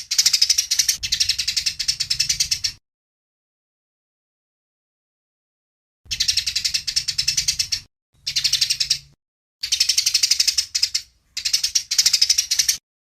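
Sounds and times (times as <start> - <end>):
sparrow chattering: 0.0 - 2.8, 6.1 - 12.8.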